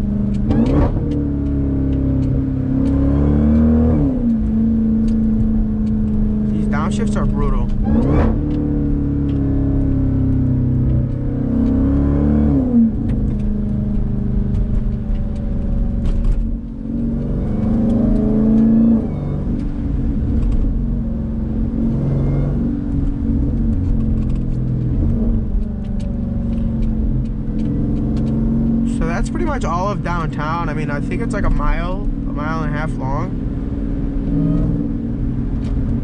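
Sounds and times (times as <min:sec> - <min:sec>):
car engine accelerating through gears: 0:00.0 - 0:36.0.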